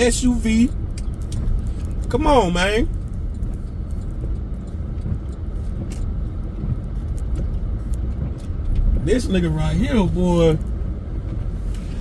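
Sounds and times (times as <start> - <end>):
road noise: 0.0 - 12.0
truck engine rumble: 0.0 - 12.0.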